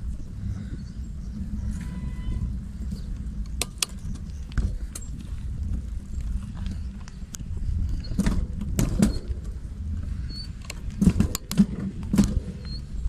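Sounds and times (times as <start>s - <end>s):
bicycle rolling rumble: 0.0s - 13.0s
rattling clicks and knocks: 8.0s - 9.6s, 10.5s - 12.6s.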